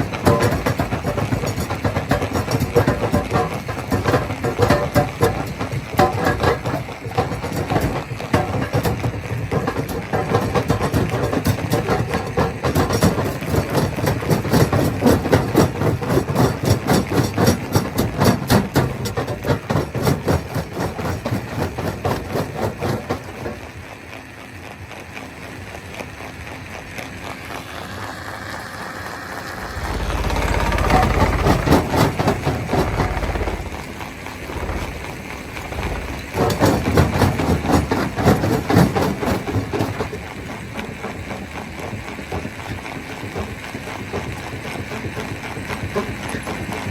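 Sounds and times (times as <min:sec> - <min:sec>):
stone crusher rapid knocking: 0:00.0 - 0:23.4, 0:29.6 - 0:40.2
heavy low rumble: 0:29.5 - 0:37.0.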